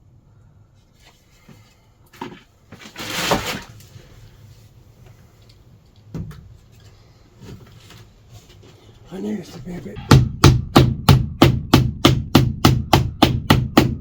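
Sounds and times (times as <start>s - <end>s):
scraping rustle: 0.9s - 4.8s.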